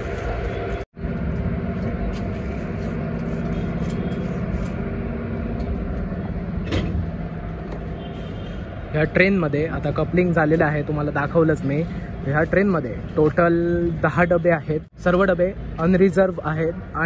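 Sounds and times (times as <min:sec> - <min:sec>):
train mechanical hum: 0:00.0 - 0:08.1.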